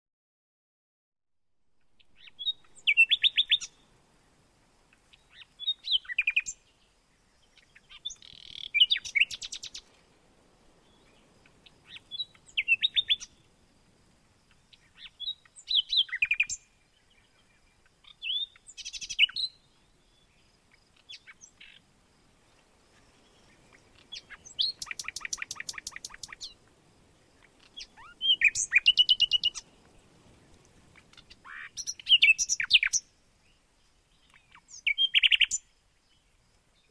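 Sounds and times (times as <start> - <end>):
songbirds singing: 1.8 - 10.1, 10.7 - 36.9
evenly pulsed bird trill: 27.7 - 29.6.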